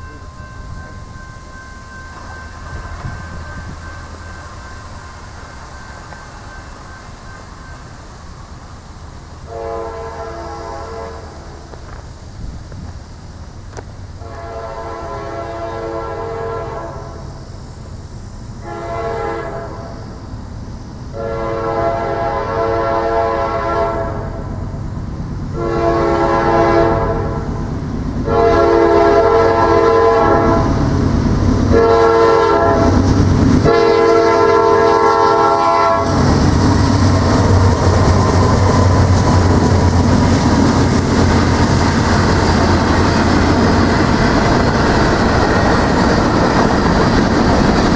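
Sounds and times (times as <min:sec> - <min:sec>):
train passing rumble: 0:00.0 - 0:47.9
locomotive air horn blasts: 0:09.5 - 0:11.5, 0:14.2 - 0:17.2, 0:18.6 - 0:20.0, 0:21.2 - 0:24.5, 0:25.5 - 0:27.6, 0:28.2 - 0:30.8, 0:31.7 - 0:33.0, 0:33.6 - 0:36.4.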